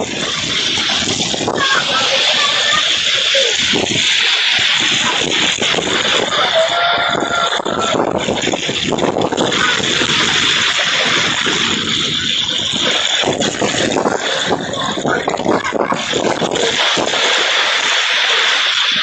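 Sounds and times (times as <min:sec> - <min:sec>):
heavy rain pouring: 0:00.0 - 0:19.0
running water splashing: 0:00.0 - 0:19.0.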